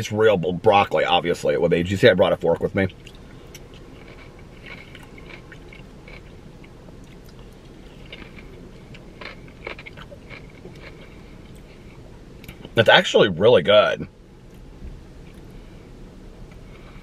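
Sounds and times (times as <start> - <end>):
low steady hum: 0.0 - 17.0
man chewing food: 2.9 - 12.8.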